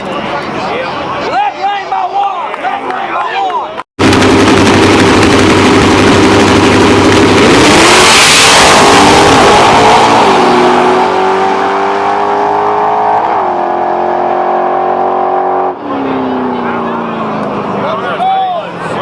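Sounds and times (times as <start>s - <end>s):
drag race cars at full throttle: 4.0s - 19.0s.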